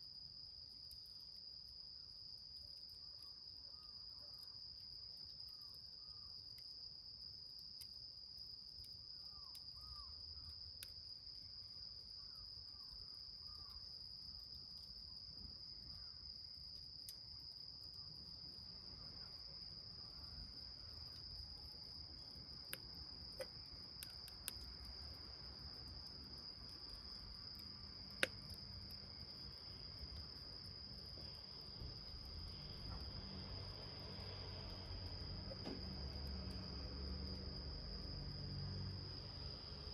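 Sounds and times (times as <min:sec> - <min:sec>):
cricket trilling: 0:07.9 - 0:39.9
wood fire crackling and popping: 0:22.2 - 0:33.2.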